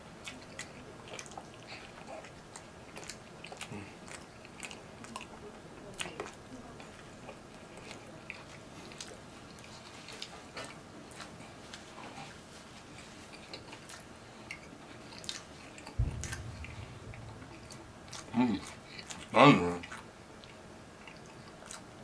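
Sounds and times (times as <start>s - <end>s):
chewing sandwich: 0.1s - 16.0s
low thump: 16.0s - 19.1s.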